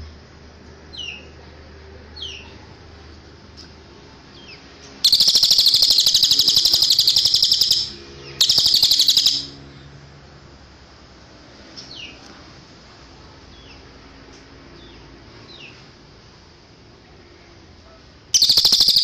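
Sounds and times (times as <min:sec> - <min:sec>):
bird high trill: 0:05.0 - 0:09.6, 0:18.4 - 0:19.0
faint falling bird chirps: 0:18.4 - 0:19.0.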